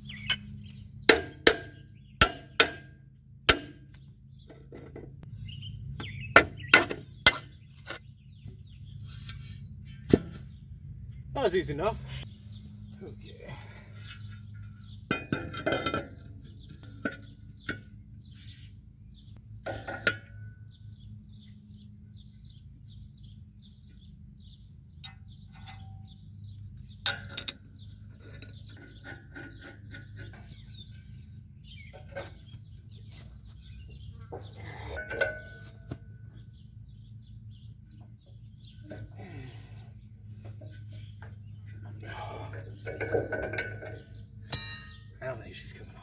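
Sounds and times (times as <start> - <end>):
small birds chirping: 0.0 - 2.6, 3.2 - 46.0
hand tools clanking on steel: 14.9 - 17.8, 34.3 - 36.1, 42.1 - 45.8.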